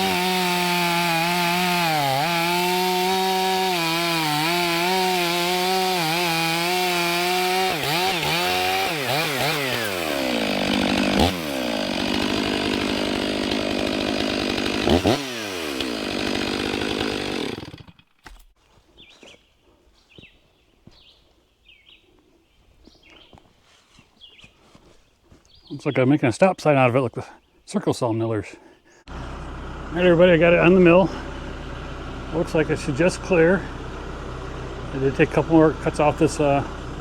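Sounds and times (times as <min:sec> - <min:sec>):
chainsaw throttle blips: 0:00.0 - 0:18.1
chainsaw cutting wood: 0:00.0 - 0:18.6, 0:29.1 - 0:37.0.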